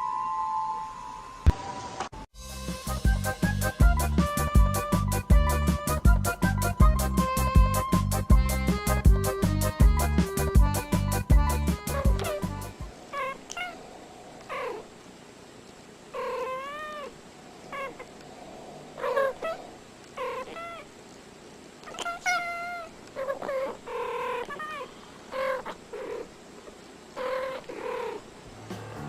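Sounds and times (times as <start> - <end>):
cat meowing: 13.1 - 13.8, 21.8 - 24.8.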